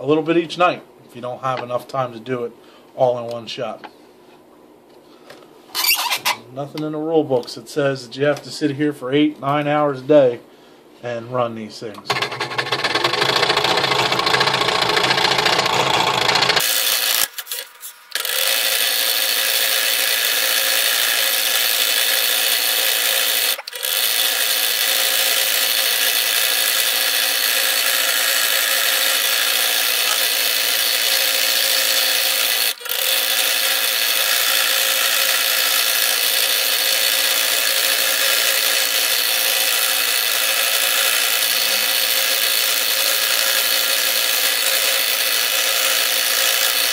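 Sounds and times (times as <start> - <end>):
scroll saw cutting wood: 5.8 - 6.4, 12.1 - 46.9.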